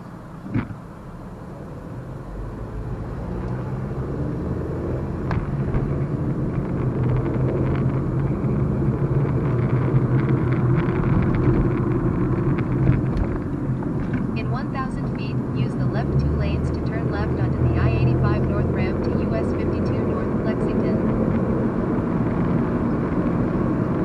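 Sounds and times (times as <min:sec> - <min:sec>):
car engine inside cabin: 0:00.0 - 0:24.0
road noise: 0:00.0 - 0:24.0.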